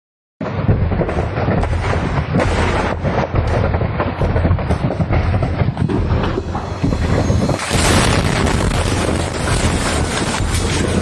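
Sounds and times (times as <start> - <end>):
explosion blasts: 0.6 - 11.0
low rumble of fire: 0.8 - 11.0.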